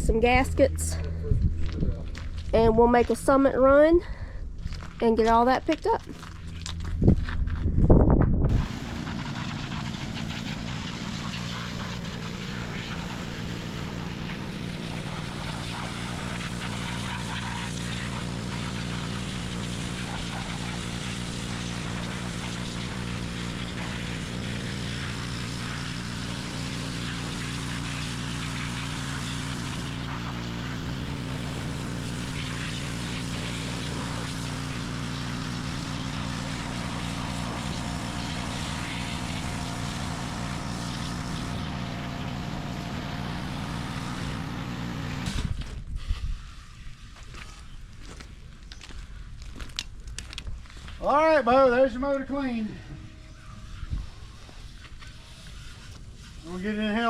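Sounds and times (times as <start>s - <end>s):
spray jet hissing: 8.5s - 45.2s
pressure washer hum: 8.5s - 47.7s, 50.8s - 57.0s.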